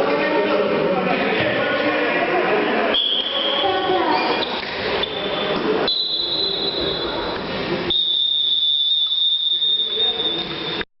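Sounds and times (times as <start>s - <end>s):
murmur of voices: 0.0s - 10.8s
high-pitched whistling tone: 3.0s - 7.3s, 7.9s - 10.8s.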